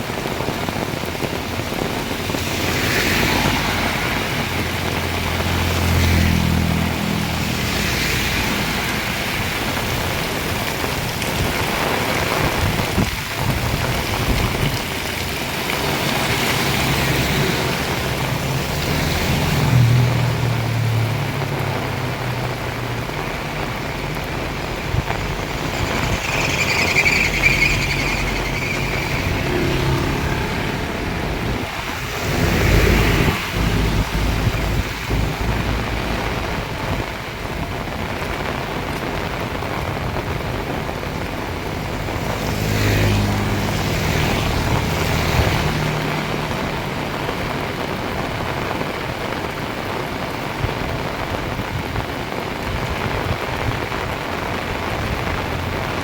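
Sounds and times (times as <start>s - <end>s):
heavy rain pouring: 0.0s - 56.0s
vehicle engine passing: 2.5s - 10.4s, 15.0s - 36.6s, 41.5s - 47.7s.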